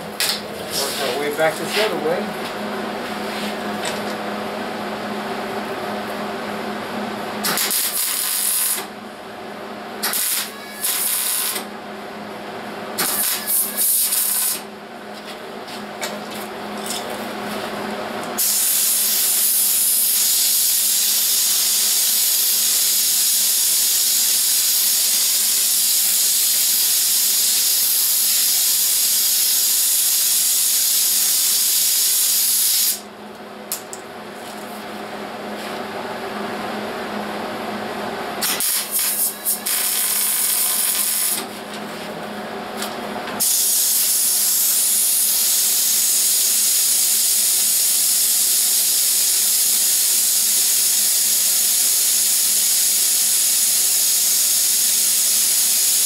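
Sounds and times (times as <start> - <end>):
welding arc hissing: 7.4 - 8.9, 10.0 - 11.7, 13.0 - 14.7, 18.4 - 33.1, 38.4 - 41.6, 43.4 - 56.0.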